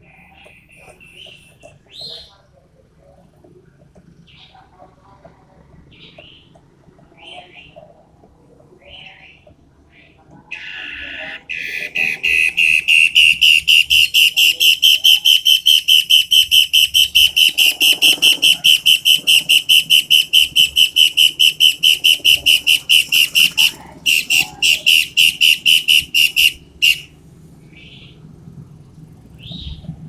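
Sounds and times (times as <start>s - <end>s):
bird whistling rapid notes: 10.5s - 27.1s.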